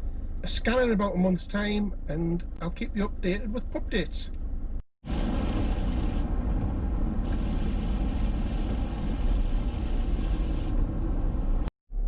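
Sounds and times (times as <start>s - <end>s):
car driving road noise: 4.4s - 12.0s.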